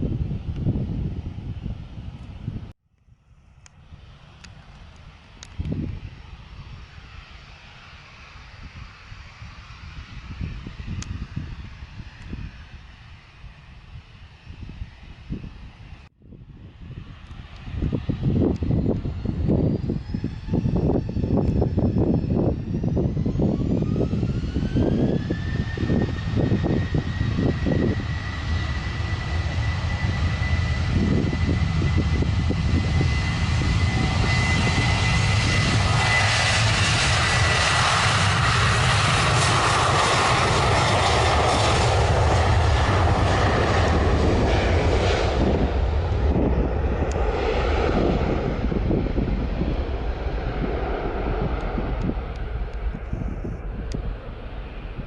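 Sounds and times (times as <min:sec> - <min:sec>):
wind buffeting microphone: 0:00.0 - 0:03.2, 0:03.8 - 0:55.0
jet engines spooling up: 0:17.0 - 0:55.0.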